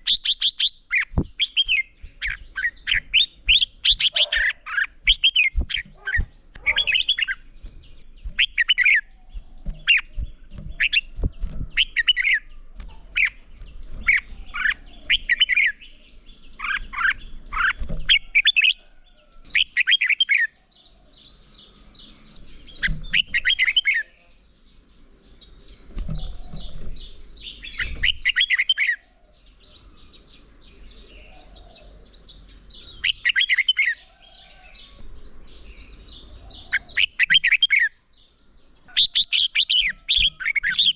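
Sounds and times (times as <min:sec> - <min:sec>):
bird rapid chattering: 0:00.0 - 0:18.8, 0:22.2 - 0:24.0.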